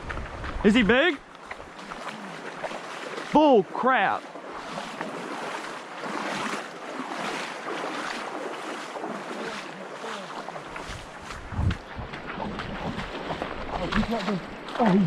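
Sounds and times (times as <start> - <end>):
water rushing over rapids: 0.0 - 15.0.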